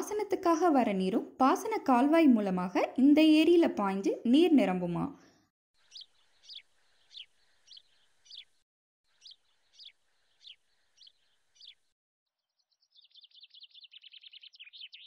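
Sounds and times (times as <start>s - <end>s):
bird chattering trill: 5.8s - 8.5s.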